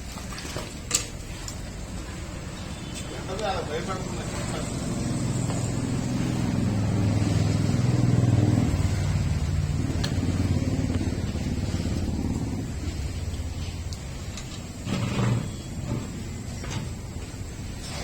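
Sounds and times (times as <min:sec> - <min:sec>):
vehicle engine passing by: 0:03.3 - 0:16.2.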